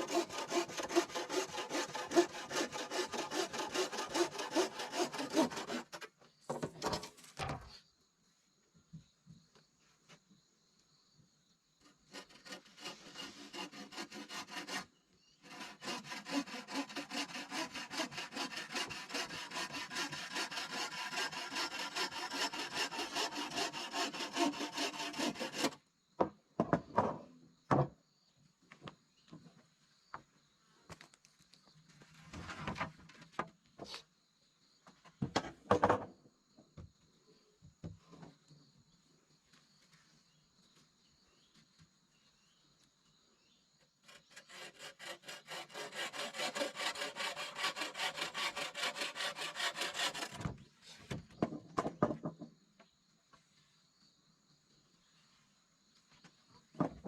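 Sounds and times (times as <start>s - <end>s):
hand saw cutting wood: 0.0s - 7.1s, 12.0s - 25.8s, 44.0s - 51.2s.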